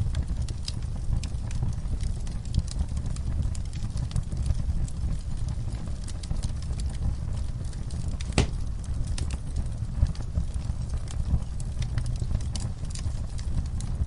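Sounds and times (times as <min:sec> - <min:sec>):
fire crackling and popping: 0:00.0 - 0:14.0
low rumble of flames: 0:00.0 - 0:14.0.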